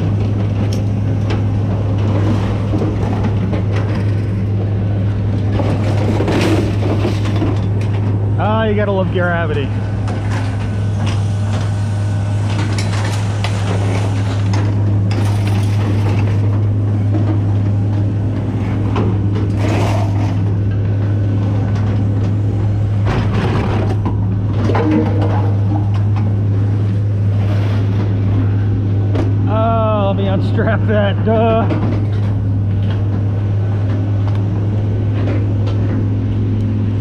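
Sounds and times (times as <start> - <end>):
metal clanks and scrapes: 5.5 - 8.1, 19.0 - 20.6, 24.6 - 26.2.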